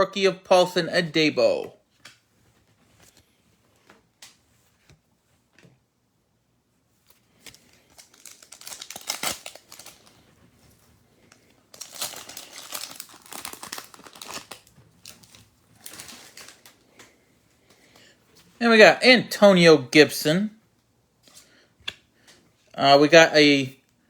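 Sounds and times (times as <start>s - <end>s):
plastic wrapper crinkling: 7.1s - 17.1s.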